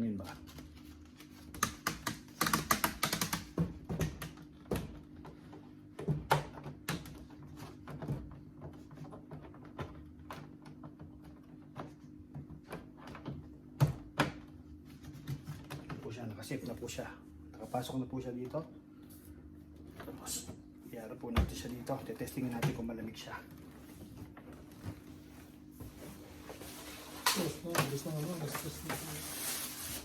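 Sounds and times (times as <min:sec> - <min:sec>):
tape clicks and taps: 0:01.5 - 0:04.9.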